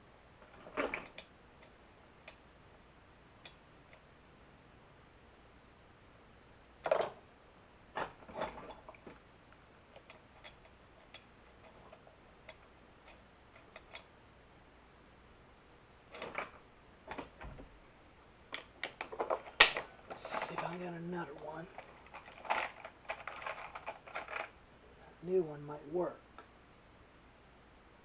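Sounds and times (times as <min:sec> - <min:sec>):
tools clicking and knocking: 0:10.0 - 0:14.1, 0:21.7 - 0:24.6.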